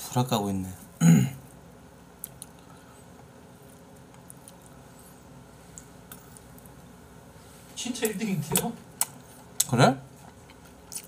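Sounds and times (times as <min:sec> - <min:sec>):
person chewing food: 0:02.2 - 0:06.9, 0:08.9 - 0:11.0.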